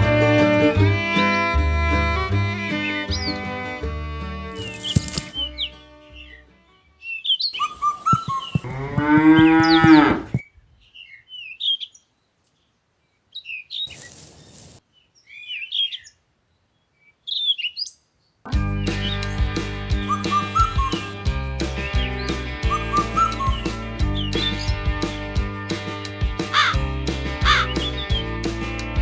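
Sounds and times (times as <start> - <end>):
small birds chirping: 7.0 - 25.8
cow mooing: 8.2 - 10.3
burst of hiss-like noise: 13.9 - 14.8.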